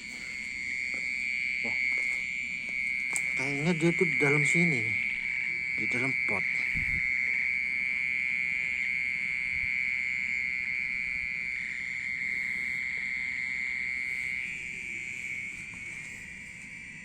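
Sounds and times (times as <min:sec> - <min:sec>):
insect high-pitched ringing buzz: 0:00.0 - 0:17.0.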